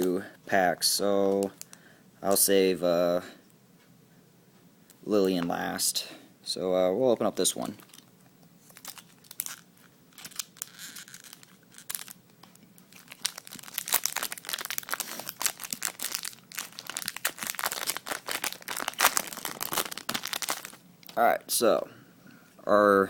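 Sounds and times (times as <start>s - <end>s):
foil wrapper crinkling: 7.7s - 12.2s, 12.8s - 20.8s
wrapper tearing open: 7.7s - 12.2s, 12.9s - 20.8s.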